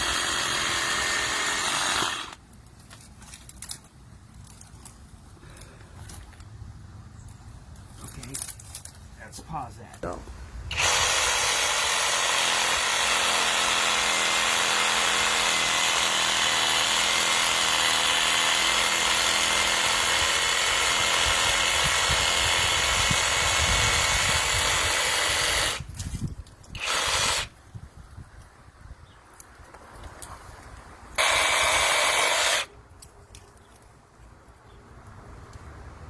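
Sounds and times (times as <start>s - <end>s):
reciprocating saw cutting branch: 0.0s - 2.4s, 10.7s - 25.9s, 26.7s - 27.5s, 31.2s - 32.7s.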